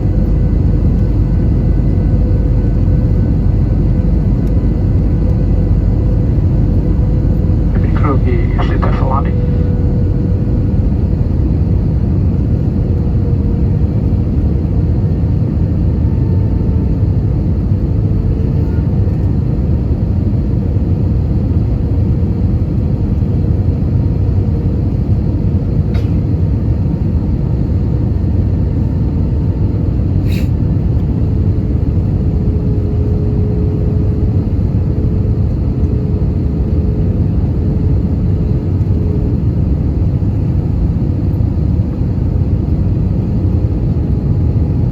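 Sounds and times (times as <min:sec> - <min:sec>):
faint steady hum: 0:00.0 - 0:12.8
airplane cabin roar: 0:00.0 - 0:44.9.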